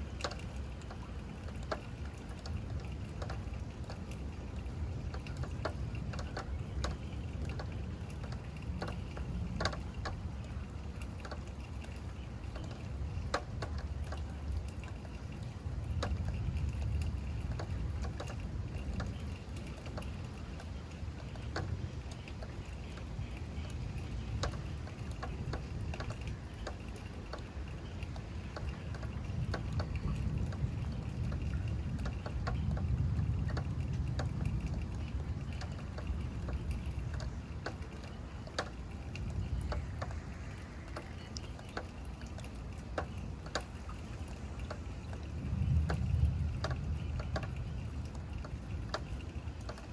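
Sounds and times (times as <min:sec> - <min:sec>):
rain: 0:00.0 - 0:49.9
raindrops ticking close by: 0:00.0 - 0:49.9
low thunder rumble: 0:28.4 - 0:41.5, 0:44.4 - 0:49.9.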